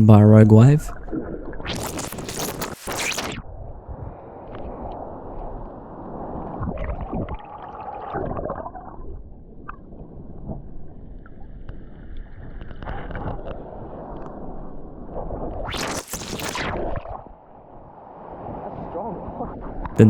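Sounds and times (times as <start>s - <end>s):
water sloshing and gurgling: 0.9s - 15.8s.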